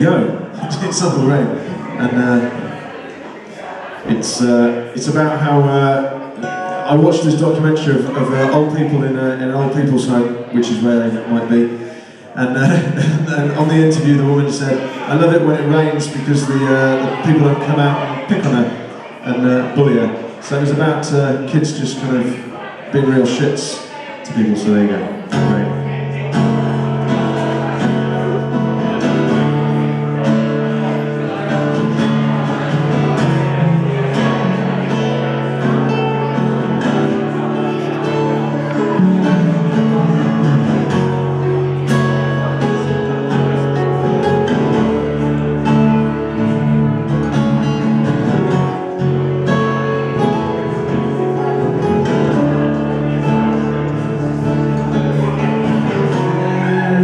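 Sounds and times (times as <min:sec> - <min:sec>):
guitar: 0:00.0 - 0:57.0
live band playing: 0:06.3 - 0:08.5, 0:25.2 - 0:57.0.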